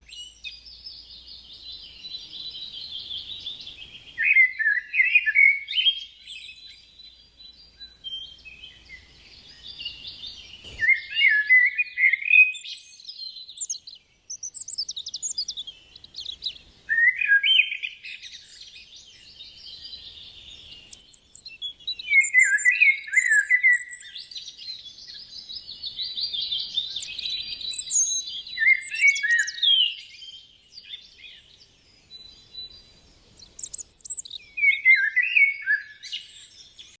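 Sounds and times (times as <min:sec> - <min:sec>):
songbird twittering and trilling: 0:00.0 - 0:37.0.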